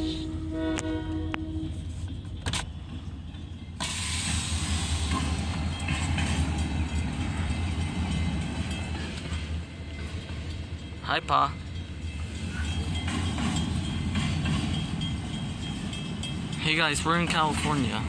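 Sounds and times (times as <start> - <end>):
hiss of rail noise: 0.0 - 0.5, 3.8 - 6.6
train rumbling: 0.0 - 18.0.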